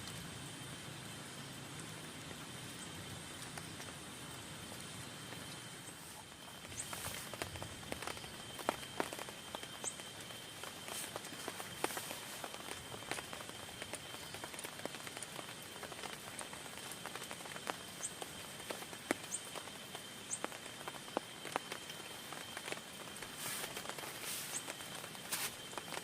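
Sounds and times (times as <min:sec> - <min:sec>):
rain pattering on a tent: 0:00.0 - 0:26.0.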